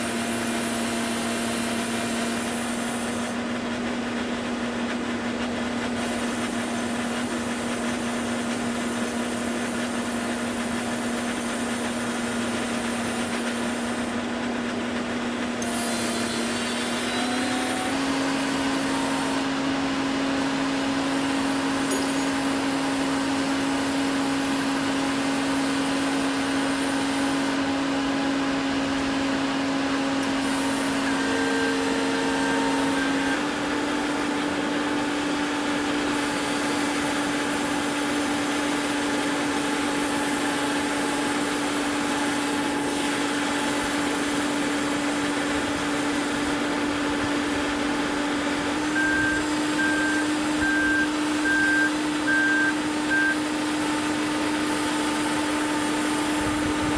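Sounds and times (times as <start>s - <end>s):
construction machine humming: 0.0s - 56.9s
warning beeper beeping: 48.9s - 53.4s.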